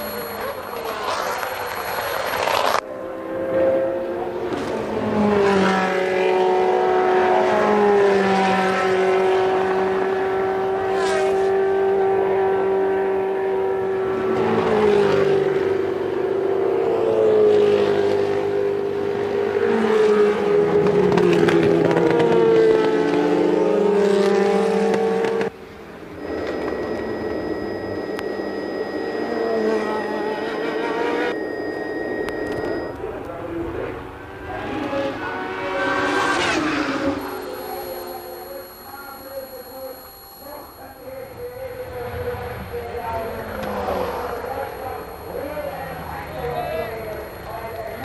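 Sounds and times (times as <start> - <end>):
thin high whine: 0.0 - 2.8, 26.0 - 35.6, 36.8 - 48.0
racing car engines revving: 0.0 - 39.5, 40.5 - 48.0.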